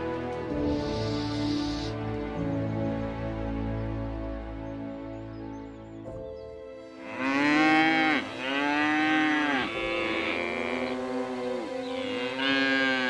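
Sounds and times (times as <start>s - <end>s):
livestock calling: 0.7s - 2.0s, 6.9s - 13.0s.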